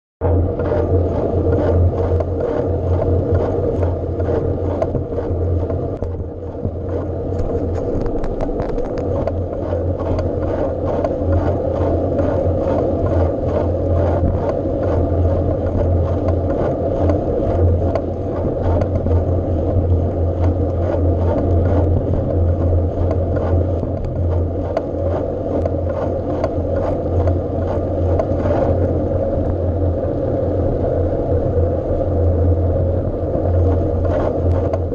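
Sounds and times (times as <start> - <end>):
bike riding rumble: 0.2 - 34.9
bike rattles and knocks: 3.0 - 19.8, 20.4 - 28.8.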